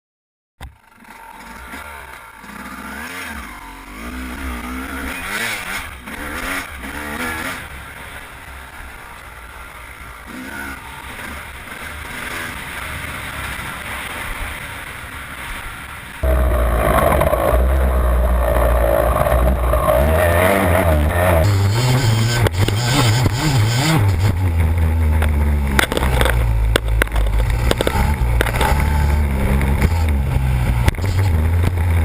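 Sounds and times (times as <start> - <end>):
motocross engine revving: 0.9 - 7.8, 16.2 - 32.0.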